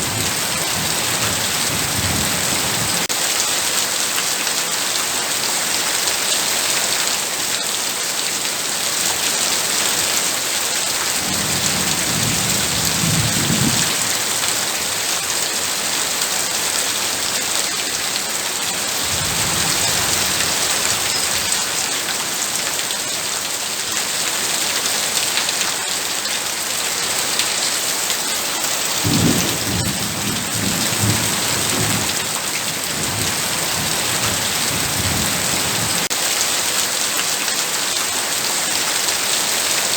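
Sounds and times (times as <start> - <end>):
low rumbles of thunder: 0.0 - 3.0, 11.2 - 14.4, 29.0 - 36.1
heavy rain falling: 0.0 - 39.9.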